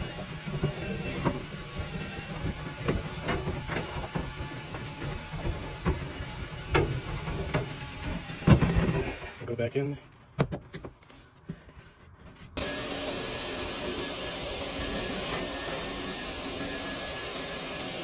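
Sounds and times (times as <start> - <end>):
duct cleaning equipment running: 0.0 - 9.1, 12.6 - 18.0
knocks and scrapes in duct: 0.0 - 12.6.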